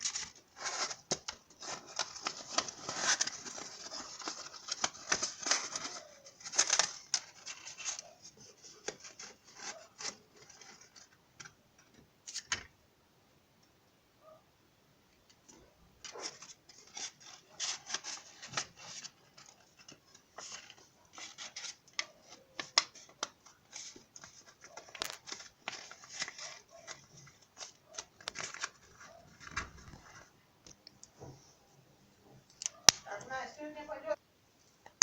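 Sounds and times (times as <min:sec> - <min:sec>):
paper rustling: 0:00.0 - 0:11.6, 0:15.5 - 0:30.3.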